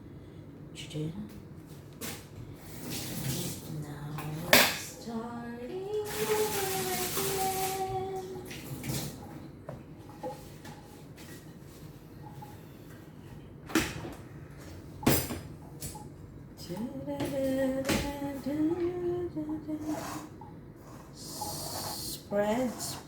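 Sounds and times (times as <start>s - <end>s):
woman humming: 16.6s - 20.3s.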